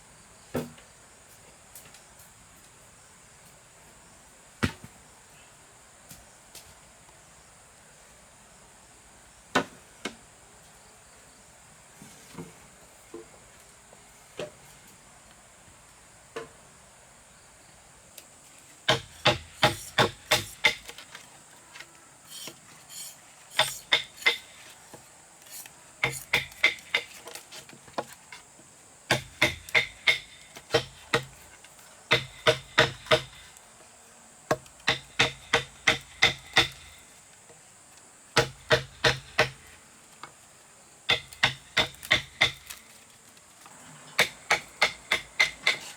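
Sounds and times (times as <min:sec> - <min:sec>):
high insect drone: 0:00.0 - 0:45.9
blade chopping on wood: 0:18.9 - 0:21.2, 0:22.3 - 0:24.6, 0:25.5 - 0:28.2, 0:29.1 - 0:31.4, 0:32.1 - 0:33.5, 0:34.5 - 0:37.0, 0:38.4 - 0:39.7, 0:41.1 - 0:42.9, 0:44.2 - 0:45.9.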